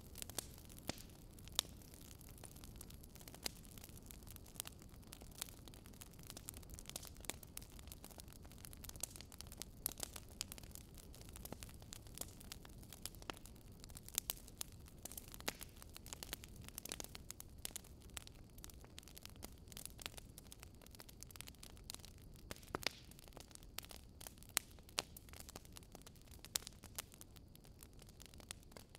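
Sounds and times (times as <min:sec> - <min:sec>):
low rumble of flame: 0:00.0 - 0:28.9
wood fire crackling: 0:00.0 - 0:28.9.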